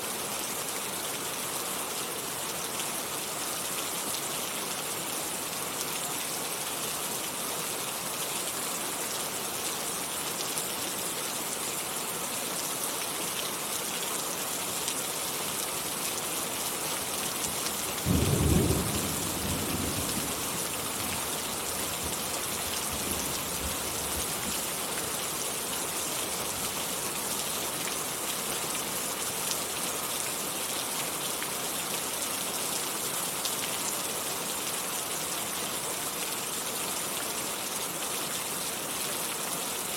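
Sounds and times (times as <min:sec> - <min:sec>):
steady rain falling: 0:00.0 - 0:39.9
low rumble of thunder: 0:18.1 - 0:23.8.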